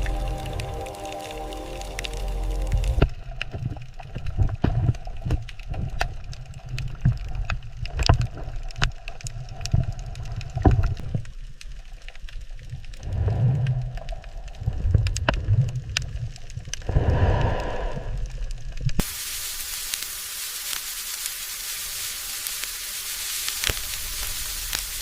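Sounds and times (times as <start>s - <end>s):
low water rumble: 0.0s - 5.3s, 12.5s - 19.0s.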